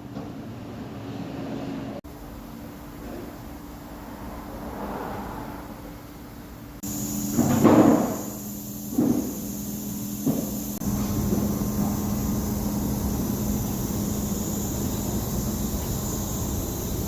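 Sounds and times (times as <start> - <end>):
motor hum: 6.8 - 17.0.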